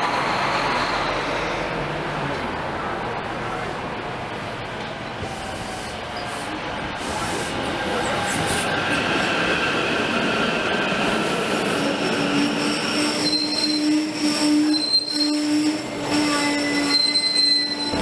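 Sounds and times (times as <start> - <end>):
electric train rolling past: 0.0 - 18.0
high-pitched squeal: 11.7 - 18.0.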